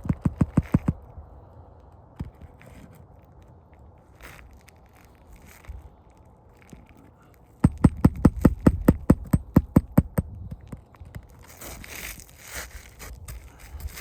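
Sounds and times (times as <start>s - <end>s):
tool knocking on roof shingle: 0.0s - 1.0s, 7.6s - 10.6s
tool scraping roof shingle: 0.0s - 1.0s, 6.7s - 14.0s.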